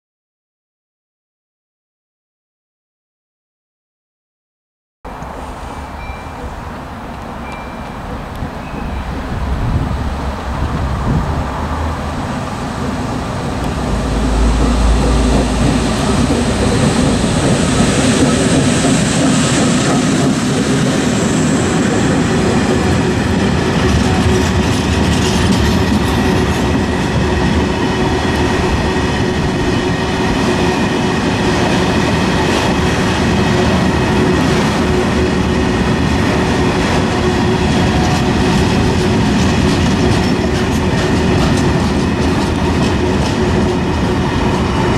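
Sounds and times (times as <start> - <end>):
electric locomotive passing: 5.1 - 44.9
freight wagons rolling past: 5.1 - 44.9
wheels rumbling on rails: 5.1 - 44.9.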